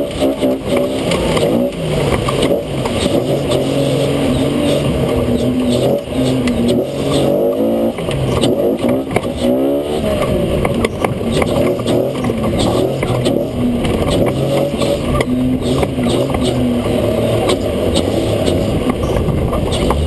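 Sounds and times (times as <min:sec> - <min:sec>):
engine revving: 0:00.0 - 0:20.0
knocks and rattles: 0:00.1 - 0:03.7, 0:10.2 - 0:20.0.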